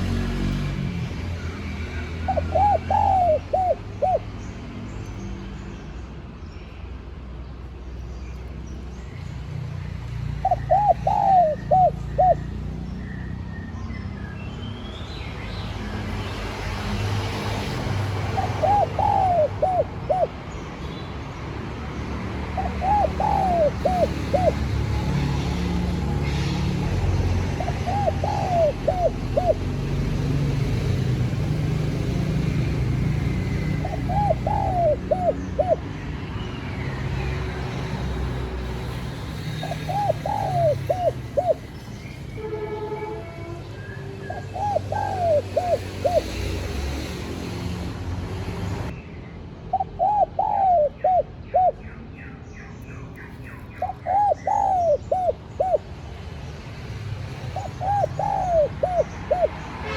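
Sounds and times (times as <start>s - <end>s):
dove cooing: 2.2s - 4.3s, 10.4s - 12.6s, 17.9s - 20.5s, 22.5s - 26.4s, 27.4s - 30.1s, 33.4s - 36.0s, 39.6s - 41.7s, 44.3s - 46.5s, 49.7s - 51.8s, 53.8s - 55.9s, 57.5s - 59.6s.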